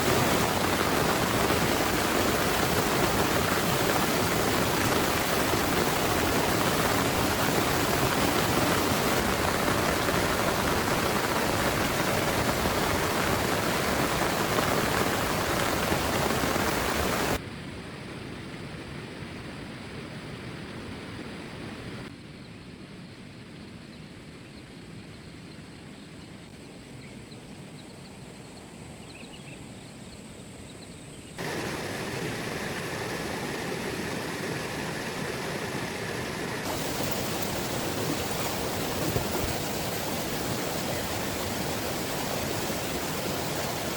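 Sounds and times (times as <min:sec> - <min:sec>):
heavy rain pouring: 0:00.0 - 0:17.4, 0:31.4 - 0:43.9.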